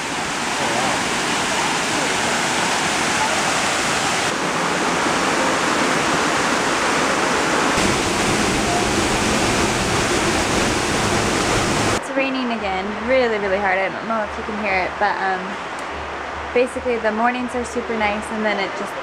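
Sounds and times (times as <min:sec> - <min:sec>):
falling water rushing: 0:00.0 - 0:12.0.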